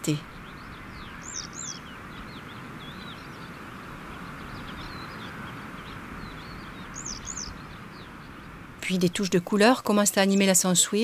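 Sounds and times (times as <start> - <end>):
high arching bird calls: 0.0 - 11.0
small high bird chirps: 0.3 - 3.6, 4.2 - 8.5.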